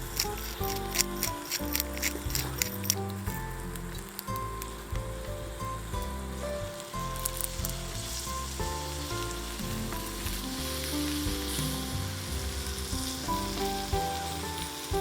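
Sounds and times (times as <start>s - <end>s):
background music: 0.0s - 15.0s
food sizzling in a pan: 6.3s - 15.0s.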